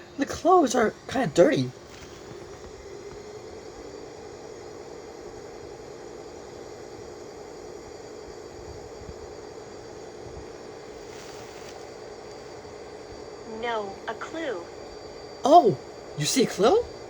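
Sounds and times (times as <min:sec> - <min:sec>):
steady hum: 0:00.0 - 0:17.0
brief hiss: 0:11.0 - 0:12.0.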